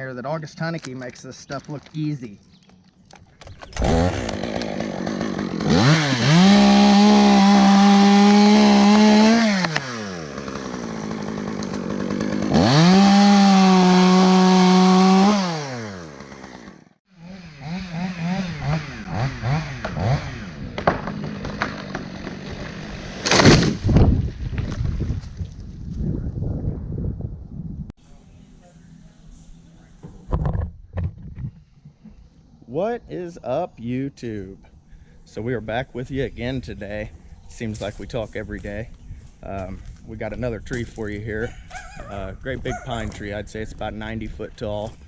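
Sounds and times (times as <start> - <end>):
chainsaw revving: 3.7 - 23.9.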